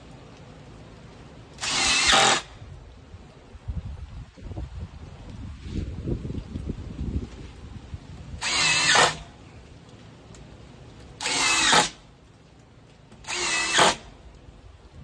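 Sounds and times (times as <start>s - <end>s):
power drill whining: 1.6s - 2.5s, 8.4s - 9.2s, 11.2s - 12.0s, 13.2s - 14.0s.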